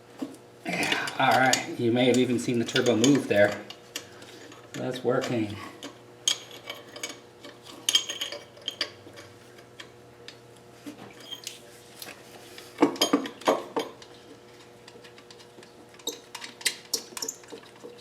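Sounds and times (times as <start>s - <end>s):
metal tools clinking and knocking: 0.8s - 3.7s, 4.7s - 9.3s, 12.8s - 14.1s, 16.0s - 17.9s.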